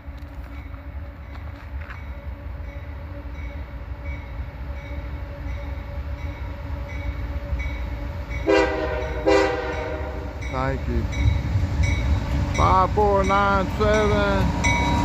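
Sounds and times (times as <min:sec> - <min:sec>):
diesel locomotive rumbling: 0:00.0 - 0:15.0
locomotive bell ringing: 0:00.5 - 0:15.0
air horn blast: 0:08.4 - 0:10.4.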